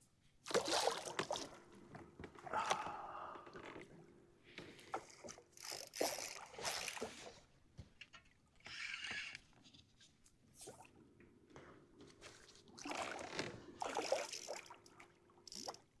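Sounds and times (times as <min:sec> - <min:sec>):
water splashing around kayak: 0:00.5 - 0:03.2, 0:12.3 - 0:15.9.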